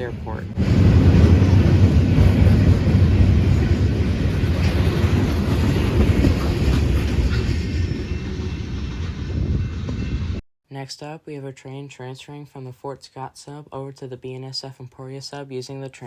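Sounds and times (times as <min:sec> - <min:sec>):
freight train rumbling past: 0:00.0 - 0:10.4.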